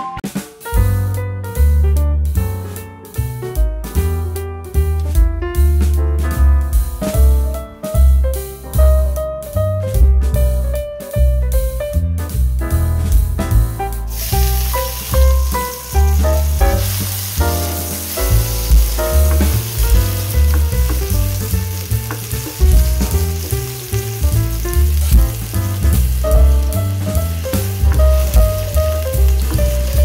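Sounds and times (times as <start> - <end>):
music with pulsing bass: 0.7 - 30.0
ginger sizzling in hot oil: 13.9 - 30.0.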